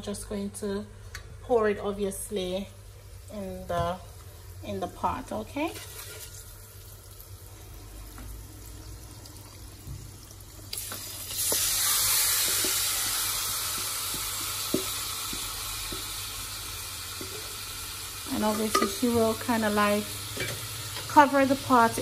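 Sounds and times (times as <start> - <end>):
chicken sizzling in hot oil: 5.0 - 22.0.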